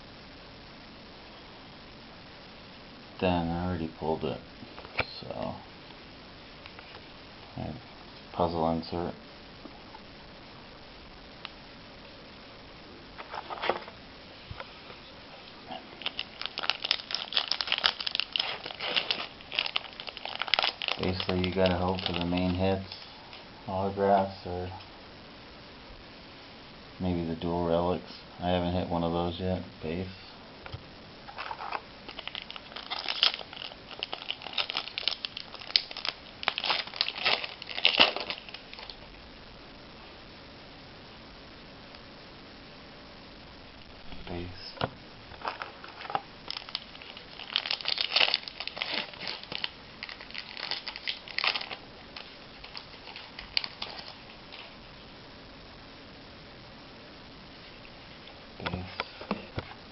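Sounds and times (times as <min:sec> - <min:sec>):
foil wrapper crinkling: 0:15.7 - 0:23.1, 0:31.3 - 0:39.1, 0:45.3 - 0:54.8.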